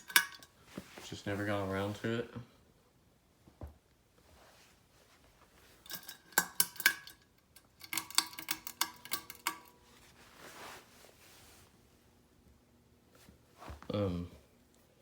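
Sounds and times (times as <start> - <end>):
hard objects clinking and rattling: 0.0 - 0.6, 5.8 - 9.8
soft rustle: 0.5 - 2.3, 4.1 - 5.9, 9.8 - 12.2, 13.0 - 15.0.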